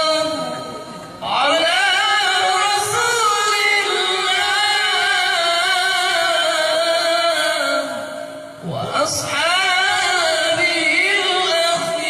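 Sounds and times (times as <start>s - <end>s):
person reciting melodically: 0.0s - 12.0s.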